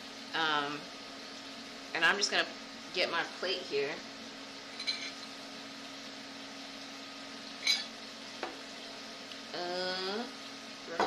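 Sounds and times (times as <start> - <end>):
chicken sizzling in a skillet: 0.0 - 11.0
fork clinking on a plate: 7.6 - 7.9.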